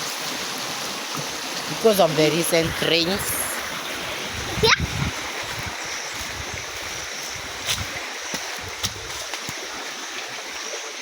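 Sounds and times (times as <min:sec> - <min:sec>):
stream water rushing: 0:00.0 - 0:11.0
wind buffeting microphone: 0:02.5 - 0:09.4.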